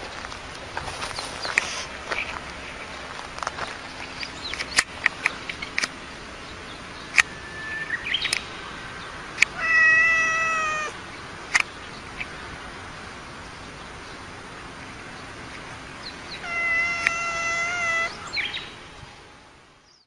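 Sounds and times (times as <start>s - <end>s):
sharp clicks: 7.1s - 7.3s, 11.5s - 11.7s, 17.0s - 17.2s
cat meowing: 9.6s - 11.0s, 16.4s - 18.3s.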